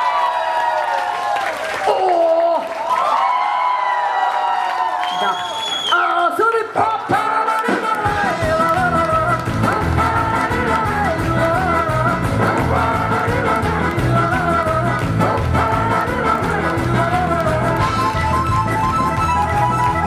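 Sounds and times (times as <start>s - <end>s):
bass and drums: 7.9s - 20.0s
live rock band playing: 8.1s - 20.0s
wavering lead melody: 8.5s - 20.0s.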